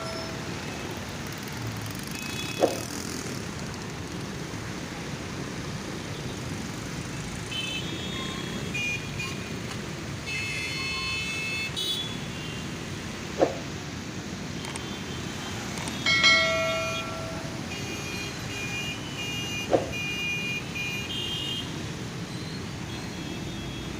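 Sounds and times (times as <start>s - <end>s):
street traffic: 0.0s - 23.9s
car horns: 14.7s - 21.8s.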